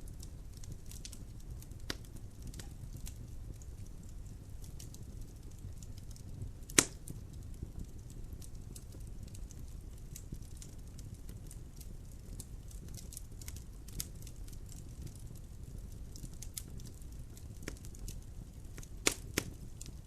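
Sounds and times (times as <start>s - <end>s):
logs crackling in fireplace: 0.0s - 20.0s
low rumble of flames: 0.0s - 20.0s
loud fire pop: 6.7s - 7.0s, 19.0s - 19.5s.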